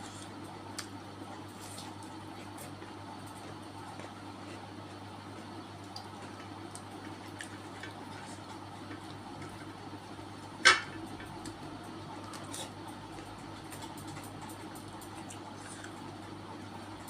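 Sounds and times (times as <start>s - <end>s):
wet chewing: 0.0s - 9.7s
steady low hum: 0.0s - 17.0s.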